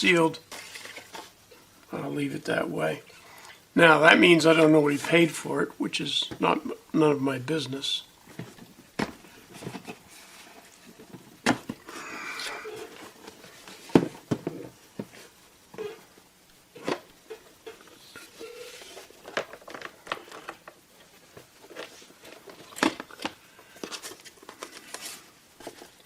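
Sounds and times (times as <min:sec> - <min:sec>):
packaging rustling: 0:16.8 - 0:26.0.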